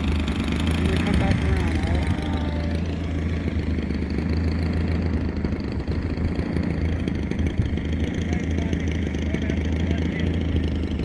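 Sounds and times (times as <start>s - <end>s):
wind buffeting microphone: 0.6s - 9.0s.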